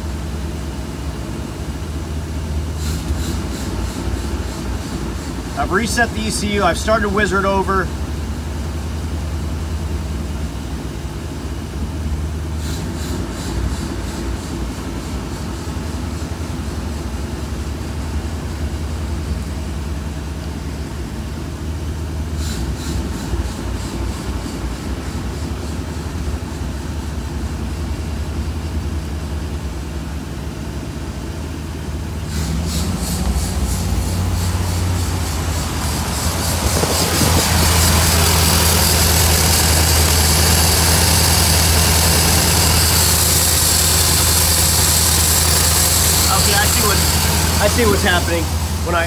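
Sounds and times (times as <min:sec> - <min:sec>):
car engine idle hunting: 0:00.0 - 0:49.0
rapid high ticking: 0:32.7 - 0:49.0.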